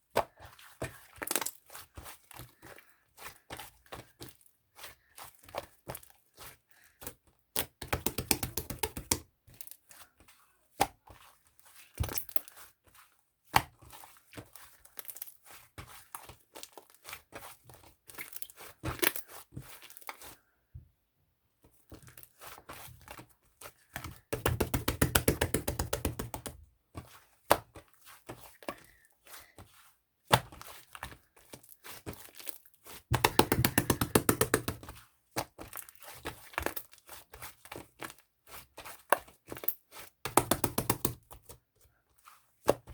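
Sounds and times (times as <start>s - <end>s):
knocks and taps: 7.8s - 9.2s, 24.3s - 26.6s, 33.1s - 34.9s, 40.3s - 41.2s.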